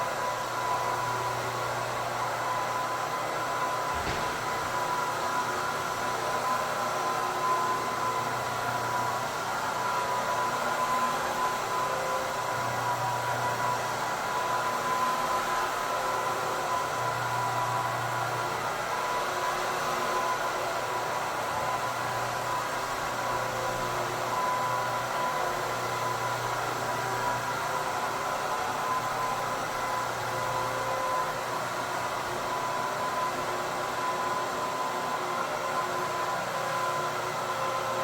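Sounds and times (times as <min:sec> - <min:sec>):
floor machine motor whining: 0:00.0 - 0:38.0.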